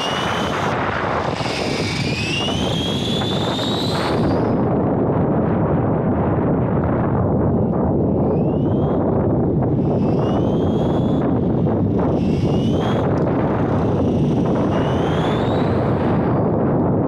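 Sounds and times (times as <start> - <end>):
electric motor whining: 0.0 - 4.6, 9.6 - 16.5
wind rumble on microphone: 0.0 - 17.0.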